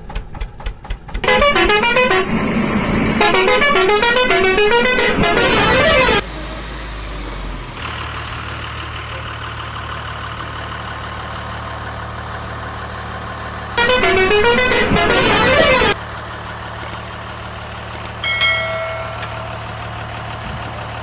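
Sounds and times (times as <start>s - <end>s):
toy melodic horn tune: 1.2s - 2.4s, 3.2s - 6.2s, 13.8s - 16.0s, 18.2s - 19.8s.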